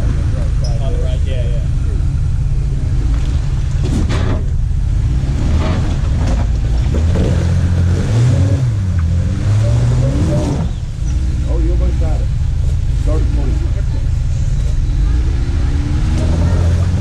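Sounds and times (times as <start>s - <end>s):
vehicle engine revving: 0.0s - 17.0s.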